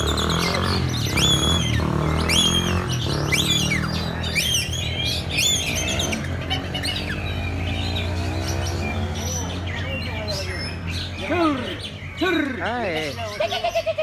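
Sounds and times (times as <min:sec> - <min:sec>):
songbirds whistling: 0:00.0 - 0:14.0.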